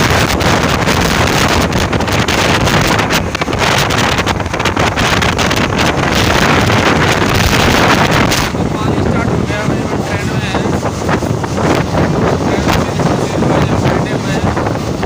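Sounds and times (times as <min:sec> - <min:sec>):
moving train rumble: 0:00.0 - 0:15.0
wind buffeting microphone: 0:00.0 - 0:15.0.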